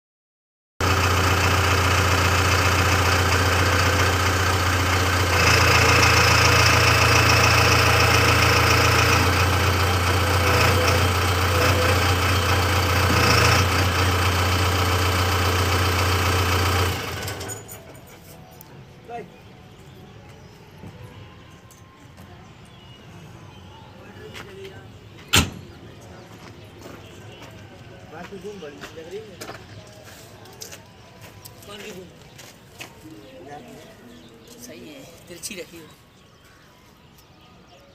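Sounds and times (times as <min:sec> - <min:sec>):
diesel engine running: 0:00.8 - 0:18.6.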